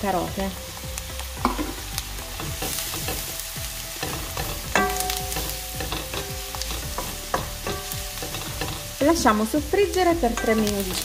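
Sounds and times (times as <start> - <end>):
vegetables sizzling in oil: 0.0 - 11.0
wooden spoon scraping a pan: 2.4 - 9.3.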